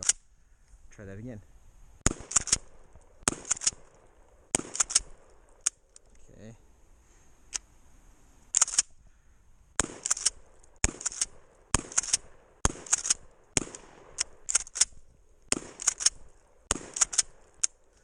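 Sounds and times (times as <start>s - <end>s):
shotgun firing: 2.0s - 5.6s, 9.8s - 17.6s
shotgun pump racking: 15.6s - 16.2s.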